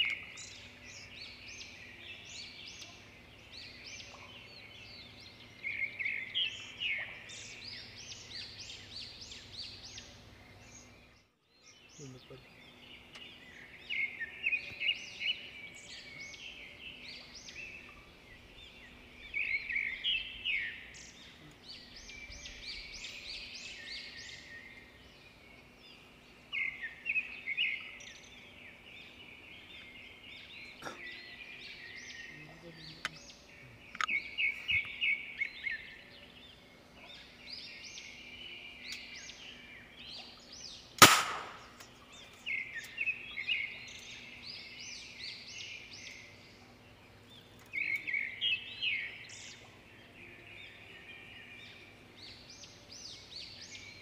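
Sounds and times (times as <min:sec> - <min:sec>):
small birds chirping: 0:00.0 - 0:54.0
sharp gunshot crack: 0:41.0 - 0:41.8.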